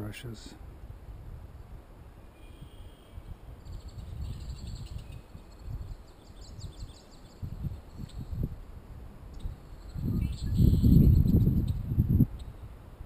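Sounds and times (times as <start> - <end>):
small birds singing: 2.2 - 8.5, 9.3 - 12.7.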